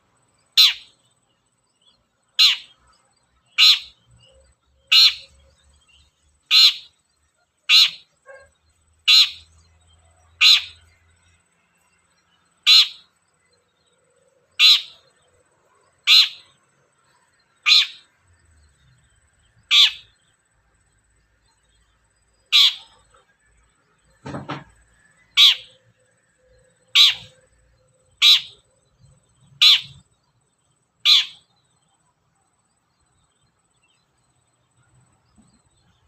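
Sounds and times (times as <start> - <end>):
bird harsh descending call: 31.1 - 31.4.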